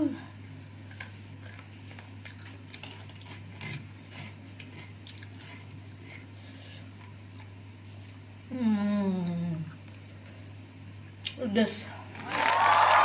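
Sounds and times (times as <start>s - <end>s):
low electrical hum: 0.0s - 13.0s
person chewing food: 0.7s - 8.3s.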